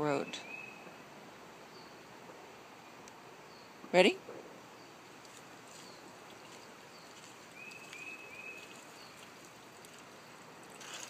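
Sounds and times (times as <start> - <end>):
bird chirps: 0.2 - 0.9, 5.7 - 9.3
faint trickle of water: 5.1 - 11.0.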